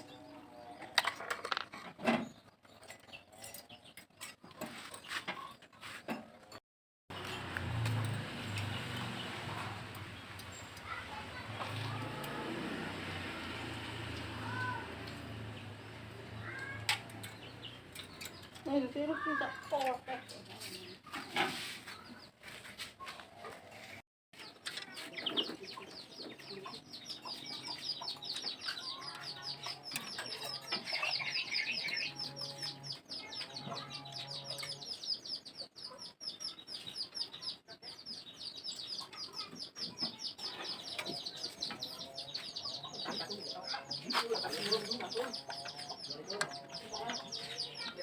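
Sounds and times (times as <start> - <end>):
chickens clucking: 7.2 - 15.5, 16.1 - 48.0
chicks cheeping: 24.4 - 48.0.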